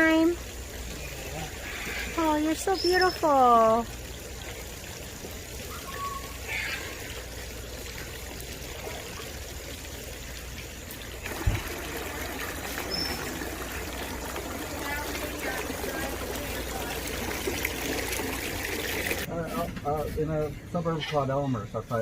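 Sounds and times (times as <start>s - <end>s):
water trickling: 0.0s - 19.3s
faint bird chirps: 5.7s - 7.0s.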